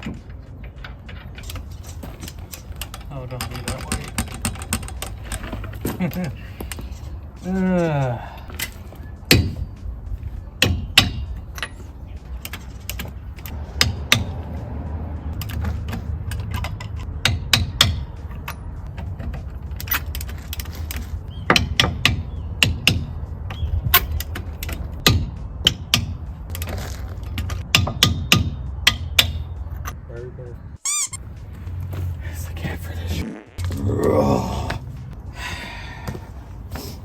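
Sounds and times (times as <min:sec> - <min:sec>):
metal tools clinking and knocking: 0:00.0 - 0:07.7, 0:10.8 - 0:13.6.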